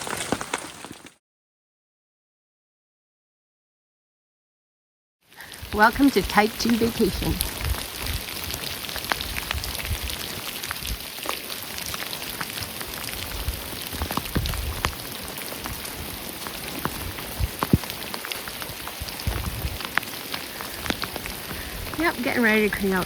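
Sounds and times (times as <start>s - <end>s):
heavy rain falling: 5.3s - 23.0s
wind buffeting microphone: 5.6s - 11.1s, 11.7s - 23.0s.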